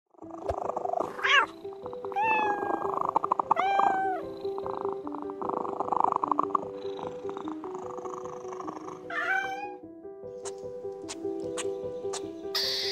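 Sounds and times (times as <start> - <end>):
soft background music: 0.1 - 12.9
cat meowing: 1.2 - 4.3, 9.0 - 9.8.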